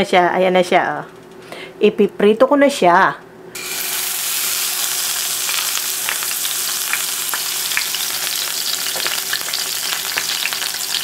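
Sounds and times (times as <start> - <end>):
food sizzling in hot oil: 3.6 - 11.0
oil popping and crackling: 3.9 - 11.0.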